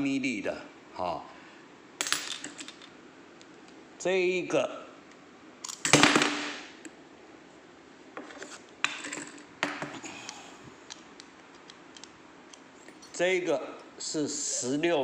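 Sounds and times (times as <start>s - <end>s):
metal tools clattering: 2.0s - 2.9s, 8.3s - 9.9s, 12.9s - 13.3s.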